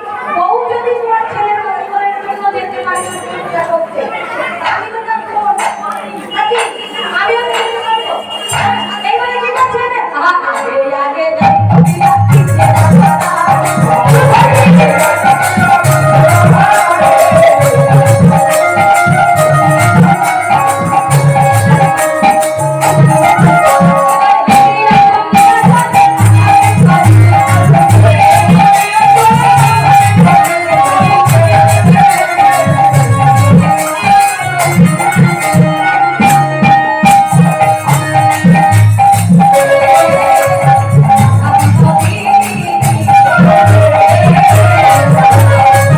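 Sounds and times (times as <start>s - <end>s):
jingling percussion: 2.8s - 45.9s
drum beats: 4.5s - 45.9s
held melody line: 11.4s - 45.9s.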